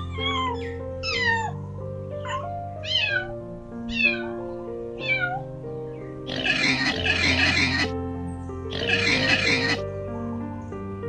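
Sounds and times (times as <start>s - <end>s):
kittens meowing: 0.0s - 1.5s, 2.3s - 3.3s, 3.9s - 4.4s, 6.3s - 7.9s, 8.7s - 9.8s
soft piano music: 0.0s - 6.3s, 7.7s - 11.0s.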